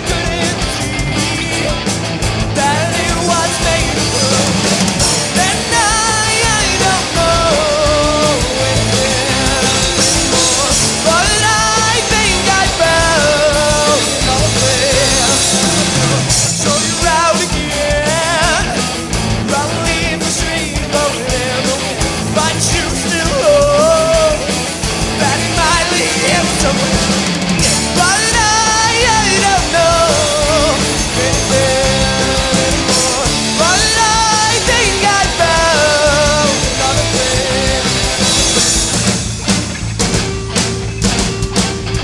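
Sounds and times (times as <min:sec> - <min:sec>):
lead vocal singing: 0:00.0 - 0:39.1
rock band playing live: 0:00.0 - 0:42.0.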